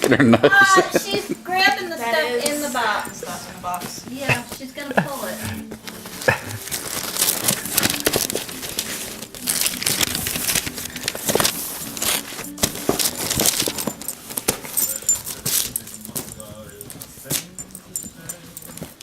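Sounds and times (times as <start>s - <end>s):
paper and cardboard tearing: 4.3s - 14.7s.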